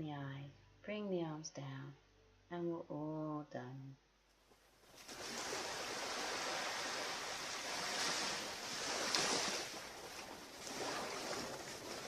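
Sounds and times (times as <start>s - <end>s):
ocean surf breaking: 5.0s - 12.0s.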